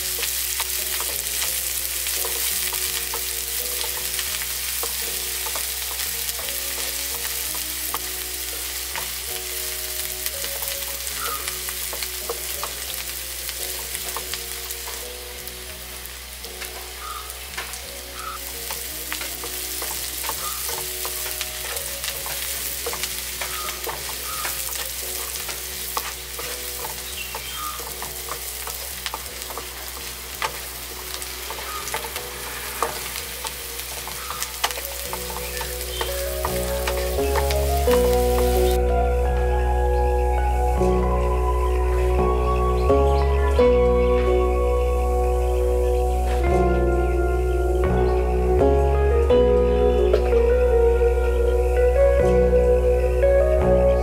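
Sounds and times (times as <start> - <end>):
onion sizzling in hot oil: 0.0 - 52.9
wooden spatula scraping and tapping pan: 18.4 - 38.7.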